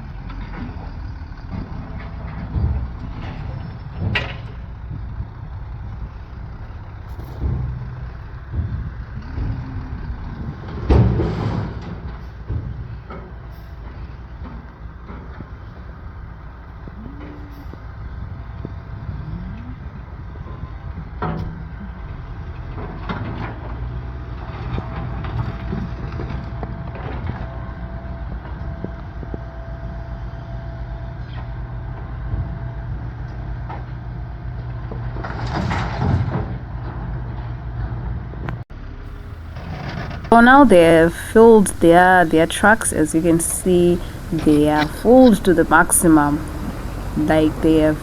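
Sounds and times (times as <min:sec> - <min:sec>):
diesel truck engine running: 0:39.2 - 0:48.0.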